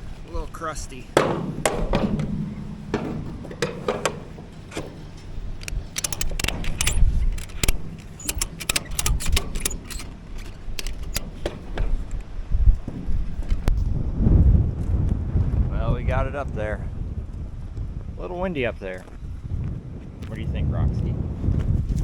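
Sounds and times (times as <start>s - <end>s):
wind rumbling on microphone: 0.0s - 22.0s
ratchet strap clicking and clanking: 1.2s - 13.8s.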